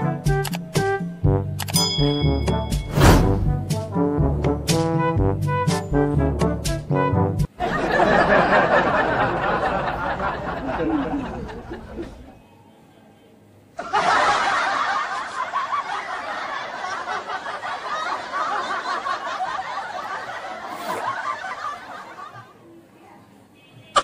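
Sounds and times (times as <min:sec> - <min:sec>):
people laughing: 0:07.6 - 0:12.3, 0:13.8 - 0:22.7.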